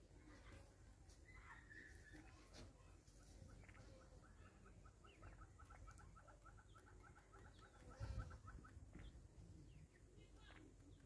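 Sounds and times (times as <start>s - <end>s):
faint chirps: 0.0s - 11.0s
bird clucking: 0.2s - 11.0s.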